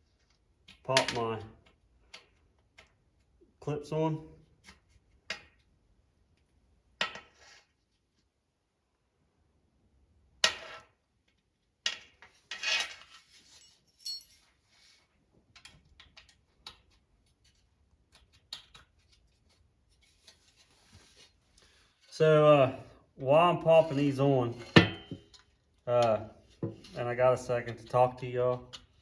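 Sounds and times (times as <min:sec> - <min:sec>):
small metal parts clinking: 0:12.6 - 0:14.6.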